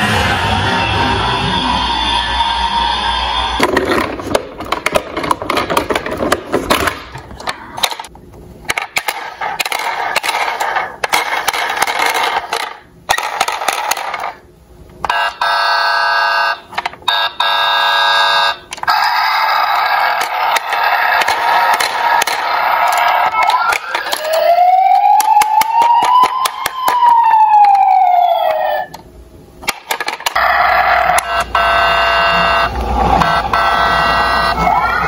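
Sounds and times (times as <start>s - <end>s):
toy cars rolling and crashing: 3.6s - 8.1s, 8.7s - 14.4s, 19.7s - 24.5s, 29.6s - 31.4s
ringing alarm-like tone: 15.1s - 21.8s, 30.4s - 35.0s.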